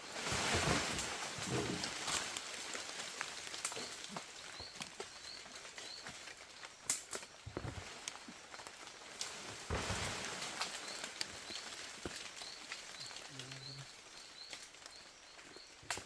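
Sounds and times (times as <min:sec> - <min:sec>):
outdoor hiss: 0:00.0 - 0:16.0.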